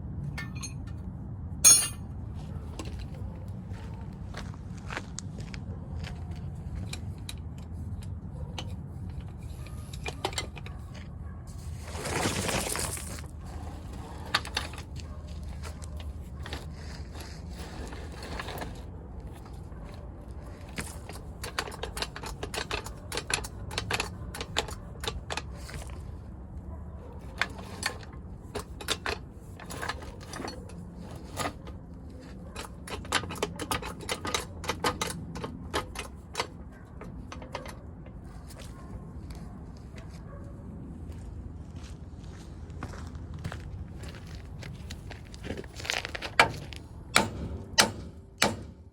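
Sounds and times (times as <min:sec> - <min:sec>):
hand tools clicking on metal: 0:00.3 - 0:00.9, 0:01.6 - 0:02.0, 0:20.7 - 0:26.0, 0:27.4 - 0:38.9.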